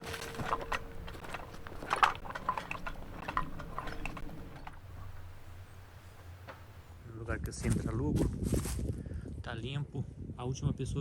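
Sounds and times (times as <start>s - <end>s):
knocks and crunches: 0.0s - 7.1s.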